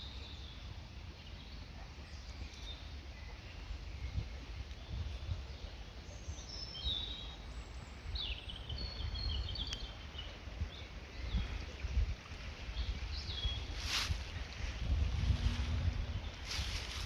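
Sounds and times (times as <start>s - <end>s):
wild birds singing: 0.0s - 17.0s
steady low rumble: 14.6s - 17.0s.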